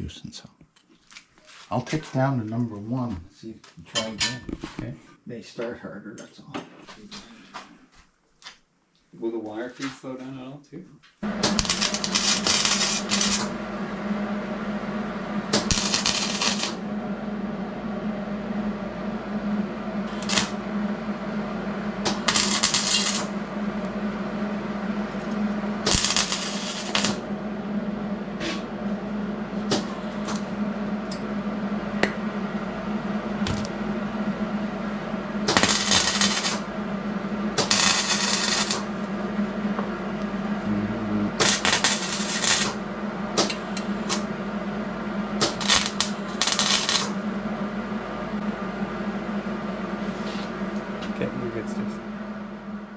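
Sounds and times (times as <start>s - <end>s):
steady hum: 0.0s - 8.0s, 9.2s - 52.9s
welding arc crackling: 11.3s - 13.6s, 15.5s - 16.9s, 20.0s - 20.9s, 21.9s - 23.9s, 25.1s - 27.3s, 29.6s - 30.6s, 33.4s - 33.8s, 35.4s - 36.8s, 37.5s - 39.1s, 41.3s - 44.4s, 45.4s - 47.2s.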